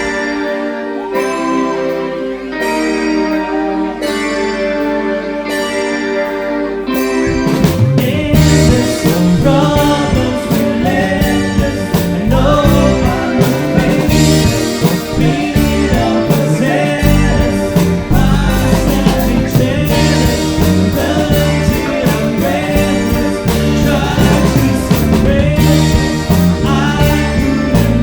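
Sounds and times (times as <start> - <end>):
electric guitar: 0.0 - 28.0
live psychedelic rock band: 0.0 - 28.0.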